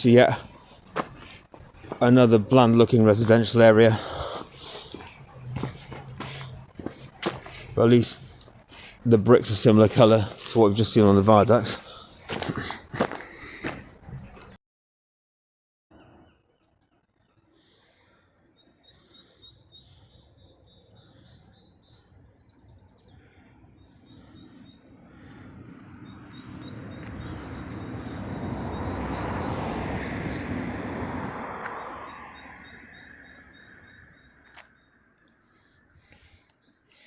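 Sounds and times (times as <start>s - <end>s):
small birds chirping: 0.0s - 14.6s, 17.4s - 30.4s
vehicle passing: 0.0s - 14.6s, 24.4s - 34.8s.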